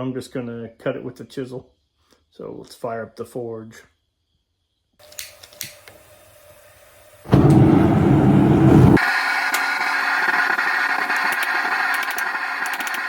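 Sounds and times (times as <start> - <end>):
igniter clicks: 5.0 - 6.2, 7.3 - 8.9, 11.1 - 13.0
burner hissing: 5.0 - 12.7
burner igniting with low rumble: 5.2 - 9.0.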